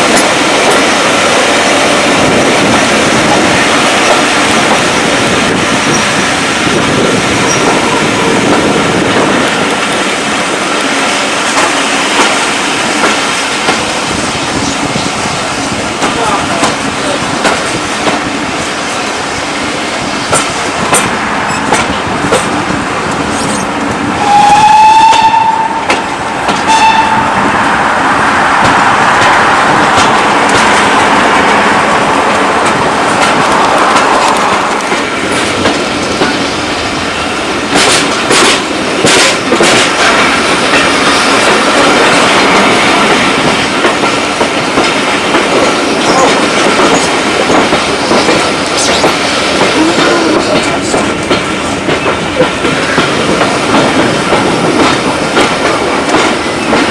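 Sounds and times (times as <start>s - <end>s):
train wheels clicking over rail joints: 0.0s - 56.9s
train whistle blasts: 24.2s - 26.0s, 26.6s - 27.4s.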